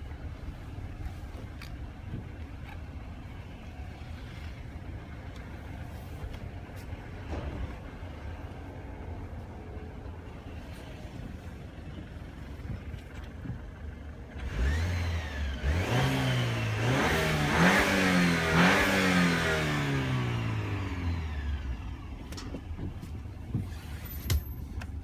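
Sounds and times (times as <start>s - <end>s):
car engine revving: 14.3s - 22.1s.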